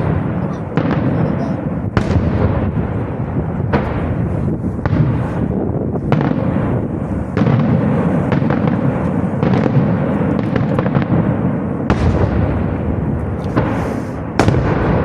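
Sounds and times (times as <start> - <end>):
rumble of firework bursts: 0.0 - 15.0
sharp firework bangs: 0.0 - 15.0.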